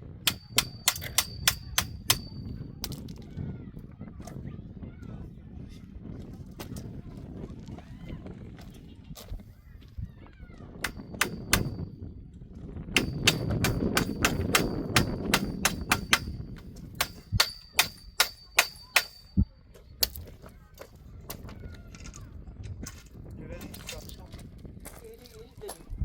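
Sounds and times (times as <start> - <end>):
hammer striking metal stake: 0.2 - 2.6, 10.8 - 11.9, 13.0 - 20.2.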